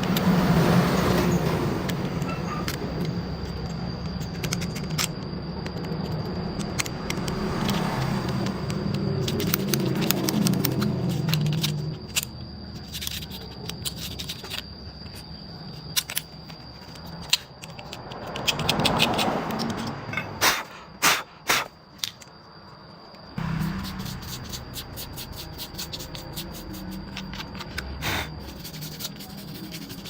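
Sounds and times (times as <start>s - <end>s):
low machine hum: 23.4s - 30.0s.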